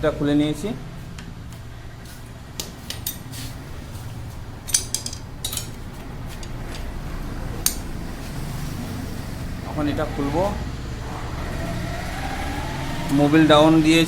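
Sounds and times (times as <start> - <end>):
metal tools clinking on engine: 4.6 - 6.8.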